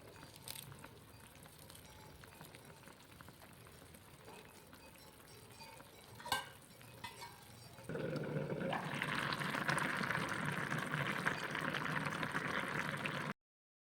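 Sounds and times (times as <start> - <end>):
food sizzling in a pan: 0.0 - 13.4
metal clink: 5.0 - 7.7.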